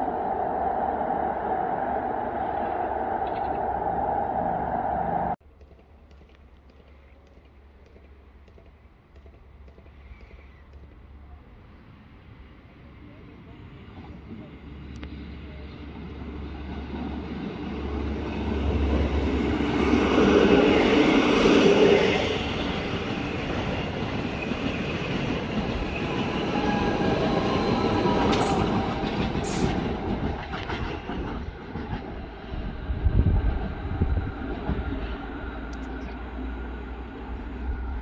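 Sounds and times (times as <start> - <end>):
electric train passing: 0.0 - 5.4, 11.7 - 38.0.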